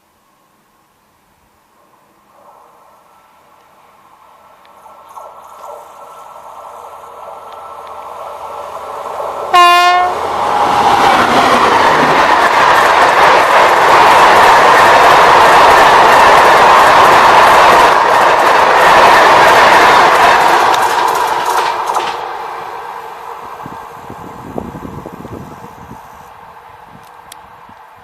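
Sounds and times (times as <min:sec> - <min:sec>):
wheel-and-rail noise: 0:01.7 - 0:28.0
train horn blast: 0:09.5 - 0:10.3
wheels clacking over rail joints: 0:10.3 - 0:25.8.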